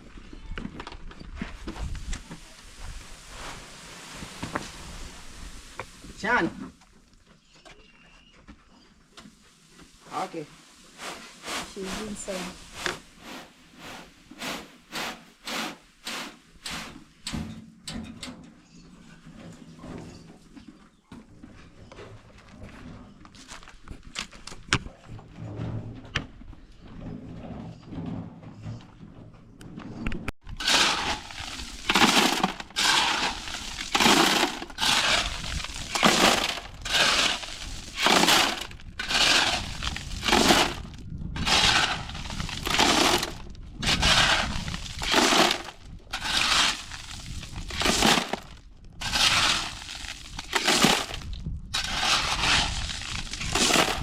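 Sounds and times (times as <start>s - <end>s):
shovel scraping through concrete: 10.1s - 17.0s, 30.5s - 54.0s.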